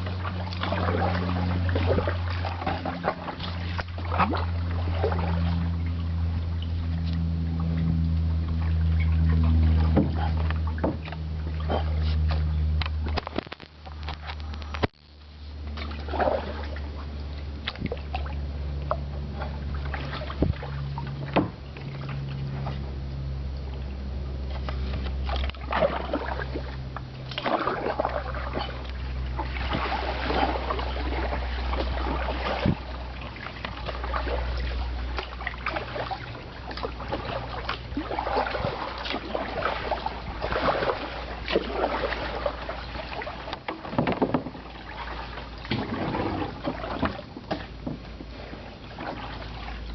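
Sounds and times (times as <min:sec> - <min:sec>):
paddle splashing water: 0:00.0 - 0:49.9
steady low rumble: 0:00.0 - 0:49.9
paddle knock: 0:09.8 - 0:12.4, 0:18.9 - 0:22.0, 0:33.6 - 0:49.4.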